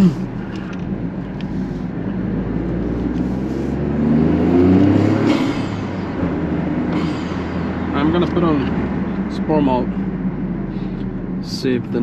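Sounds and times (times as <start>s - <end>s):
car engine accelerating: 0.0s - 12.0s
loud intake noise: 1.3s - 8.7s.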